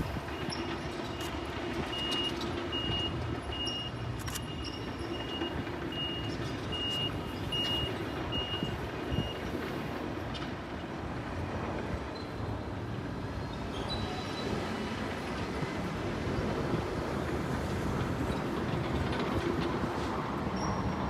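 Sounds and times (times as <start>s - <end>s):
rumble of rail traffic: 0.0s - 21.0s
high electronic warning beep: 0.3s - 9.5s.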